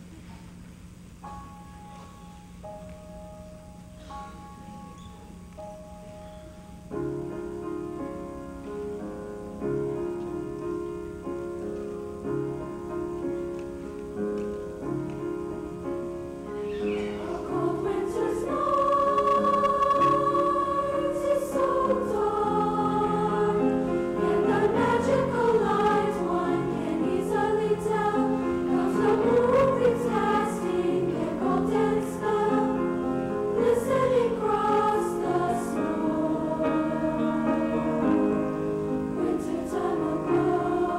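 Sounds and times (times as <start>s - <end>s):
piano accompaniment: 1.0s - 40.9s
choir singing: 17.0s - 40.9s.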